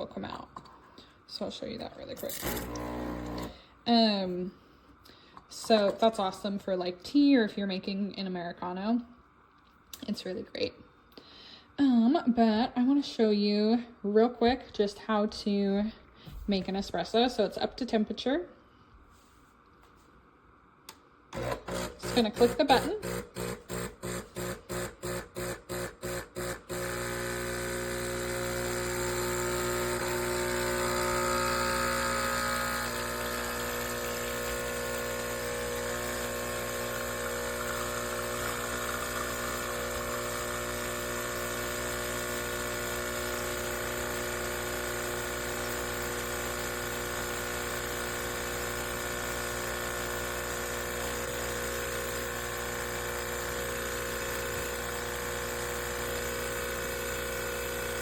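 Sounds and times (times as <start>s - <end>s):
espresso machine pump buzzing: 2.1s - 3.6s, 21.3s - 58.0s.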